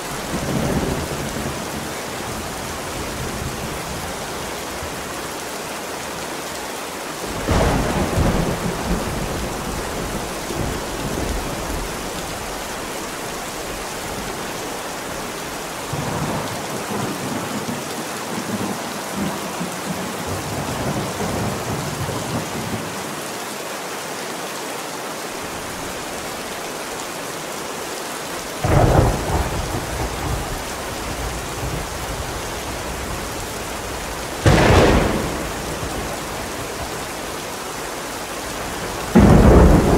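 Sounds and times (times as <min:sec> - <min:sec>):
heavy rain: 0:00.0 - 0:39.9
thunder rumbling and clapping: 0:07.4 - 0:12.0, 0:34.4 - 0:36.9.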